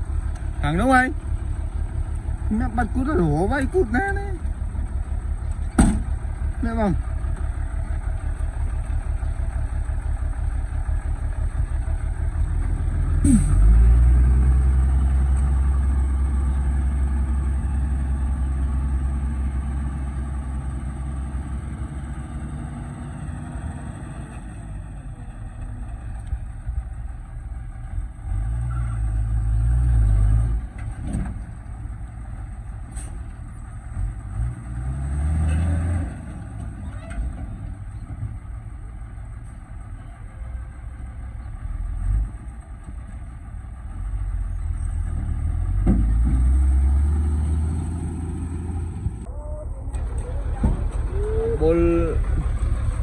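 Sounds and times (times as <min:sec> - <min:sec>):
vehicle engine revving: 0:10.9 - 0:24.9, 0:28.1 - 0:31.4, 0:33.8 - 0:37.7, 0:44.0 - 0:53.0.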